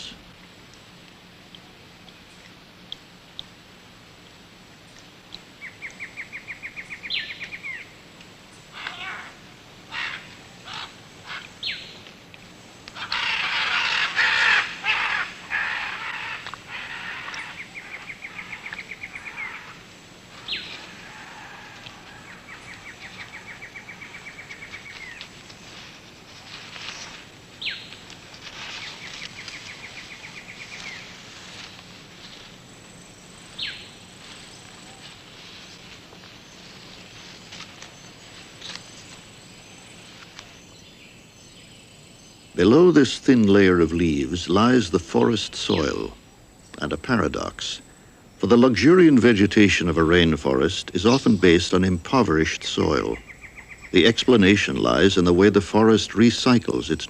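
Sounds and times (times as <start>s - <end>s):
loud harsh cawing call: 8.7s - 11.5s, 13.0s - 19.8s.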